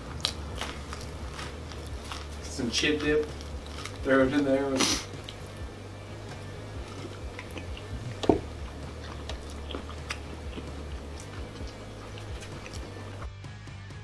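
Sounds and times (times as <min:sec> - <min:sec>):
man chewing: 0:00.0 - 0:13.3.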